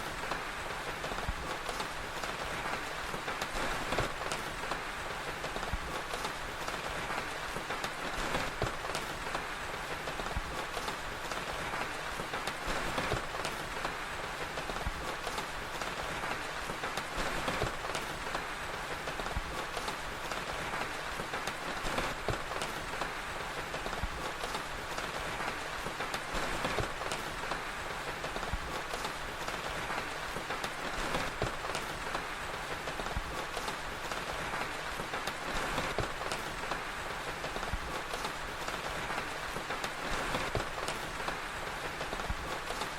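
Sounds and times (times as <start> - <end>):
fire crackling: 0.0 - 42.9
steady rain: 0.0 - 42.9.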